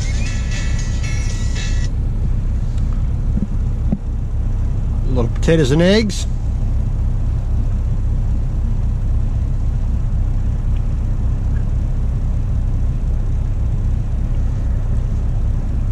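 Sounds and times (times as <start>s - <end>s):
diesel truck engine idling: 0.0s - 15.9s.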